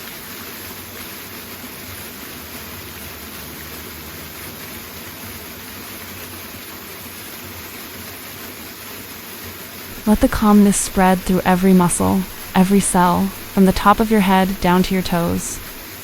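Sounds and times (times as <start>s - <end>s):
waterfall rushing: 9.9s - 16.0s.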